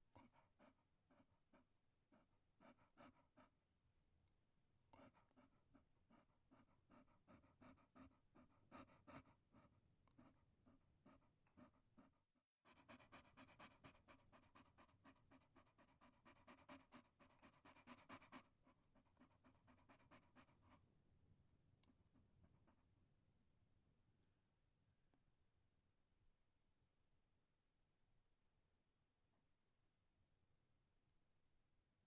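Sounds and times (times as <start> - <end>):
small dog panting: 0.1 - 3.6, 4.9 - 21.1.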